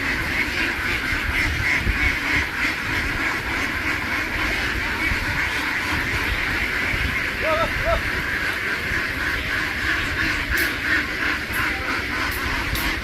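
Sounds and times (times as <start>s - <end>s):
flock of ducks quacking: 0.0s - 13.0s.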